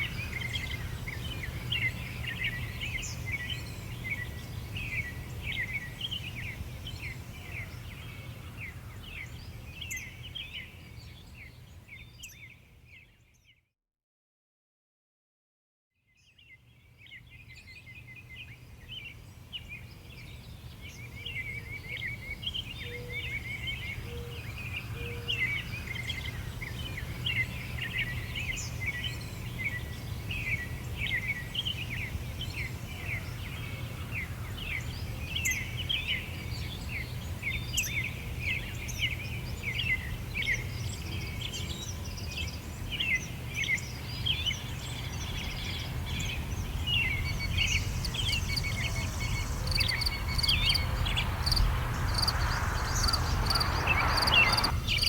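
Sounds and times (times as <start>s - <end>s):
birds chirping and singing: 45.2s - 55.0s
low background rumble: 45.8s - 55.0s.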